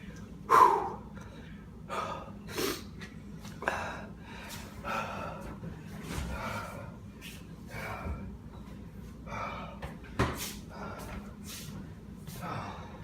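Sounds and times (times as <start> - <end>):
person breathing hard: 0.5 - 2.9, 3.6 - 8.4, 9.2 - 11.4, 12.3 - 13.0.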